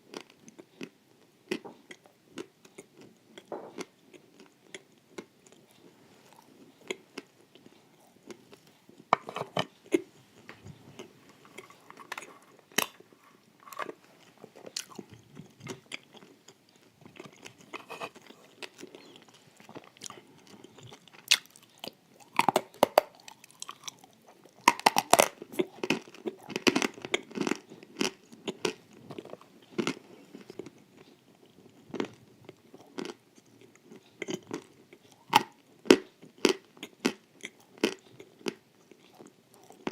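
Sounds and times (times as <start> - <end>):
wet chewing: 0.1 - 39.9
crunching of crisp wafers: 11.0 - 39.9.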